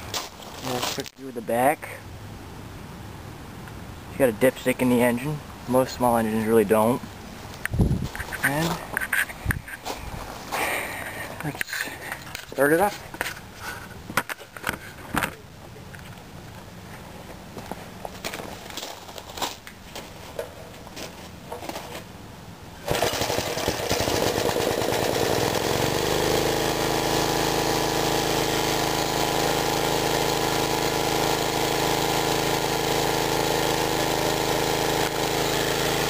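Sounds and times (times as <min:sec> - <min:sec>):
small engine starting and running: 0:22.8 - 0:36.0.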